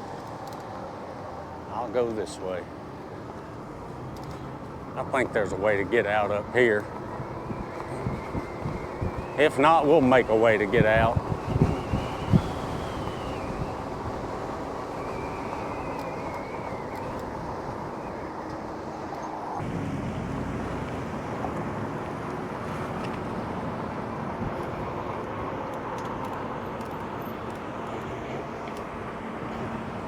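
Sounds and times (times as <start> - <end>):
tyres humming on pavement: 0.0 - 30.0
wind buffeting microphone: 5.3 - 18.9.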